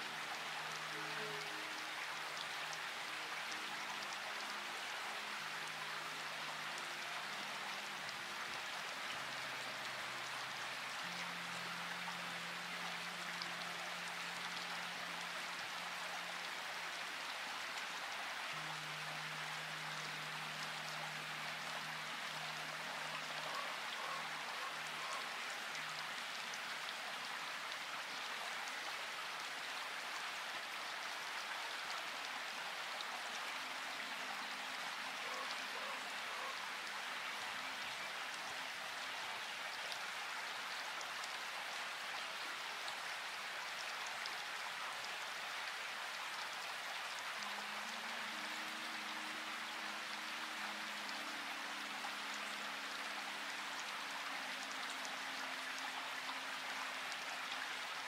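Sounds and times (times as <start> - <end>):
soft background music: 0.0 - 39.8
steady rain: 0.0 - 58.0.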